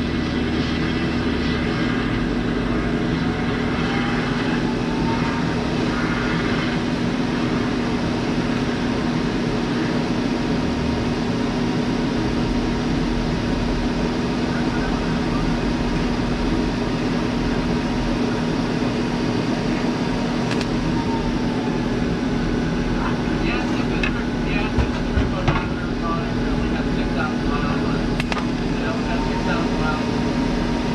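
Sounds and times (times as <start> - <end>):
welding arc hissing: 0.0 - 8.6
welding machine humming: 0.0 - 30.9.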